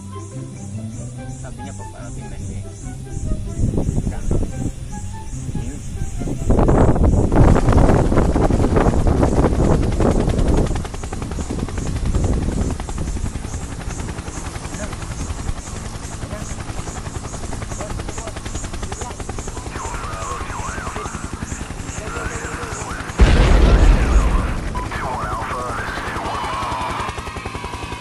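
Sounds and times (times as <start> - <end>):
helicopter rotors chopping: 0.3 - 28.0
sudden loud burst: 23.2 - 25.6.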